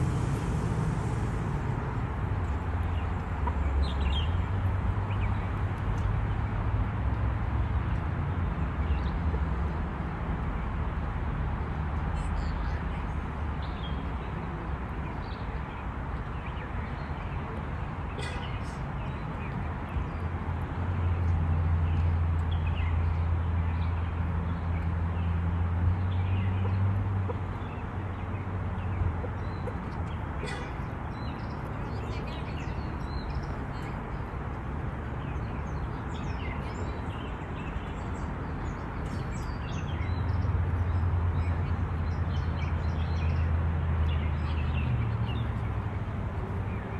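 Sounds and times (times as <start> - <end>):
steady hiss: 0.0 - 3.2.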